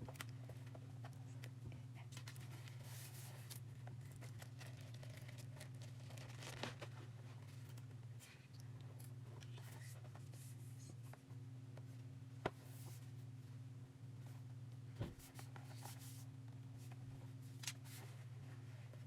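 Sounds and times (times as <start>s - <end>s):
steady low hum: 0.0s - 19.0s
rubbing and rustling: 2.1s - 8.3s, 15.0s - 19.0s.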